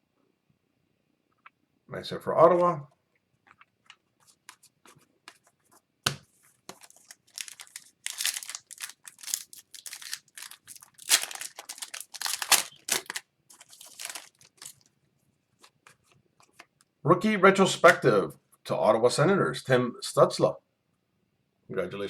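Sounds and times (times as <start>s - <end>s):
wrapper tearing and crinkling: 6.7s - 14.9s.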